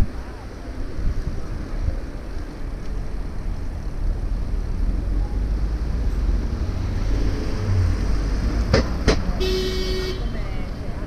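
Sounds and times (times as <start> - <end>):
wind buffeting the microphone: 0.0 - 5.2
city street traffic: 0.0 - 11.0.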